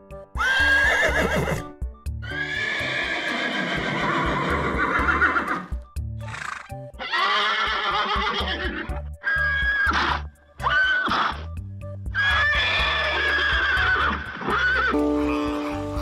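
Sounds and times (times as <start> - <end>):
horse whinnying: 0.4 - 11.5, 12.1 - 15.8
background music with bass line: 3.8 - 16.0.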